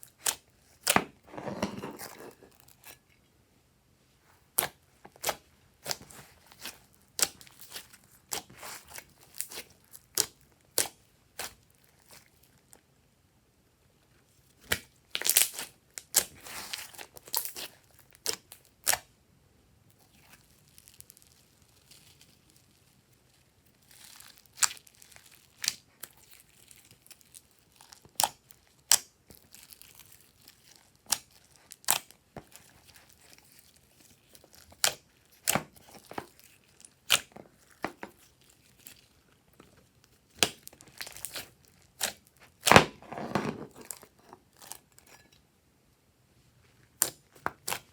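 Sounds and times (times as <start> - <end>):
slime crackling: 20.1 - 23.1.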